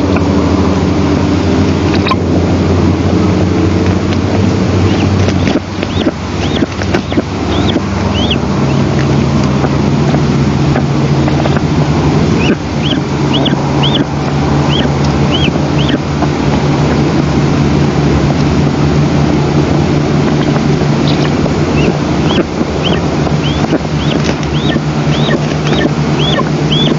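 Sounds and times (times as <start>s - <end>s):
wind buffeting microphone: 0.0s - 26.9s
short high bird calls: 21.1s - 26.9s.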